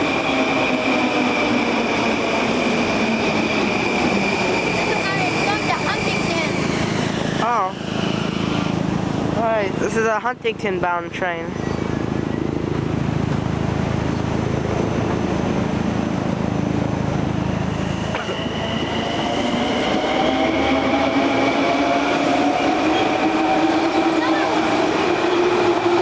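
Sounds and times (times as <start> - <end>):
train motor whine rising: 0.0 - 9.4, 11.6 - 26.0
train wheels rumbling on rail: 0.0 - 26.0.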